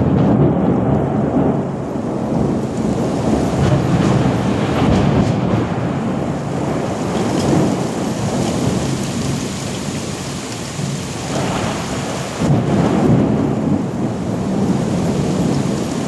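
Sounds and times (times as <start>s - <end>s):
steady rain: 0.0s - 16.0s
thunder rumbling: 0.0s - 16.0s.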